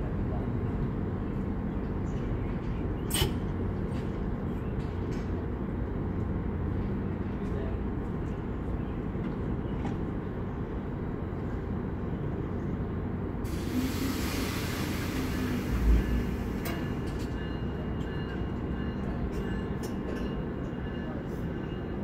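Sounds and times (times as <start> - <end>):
diesel locomotive rumble: 0.0 - 22.0
compressed air hiss: 13.5 - 15.8.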